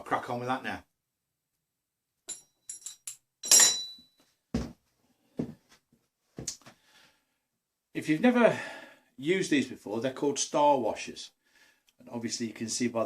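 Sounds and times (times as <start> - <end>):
metal washers clinking: 2.3 - 4.1.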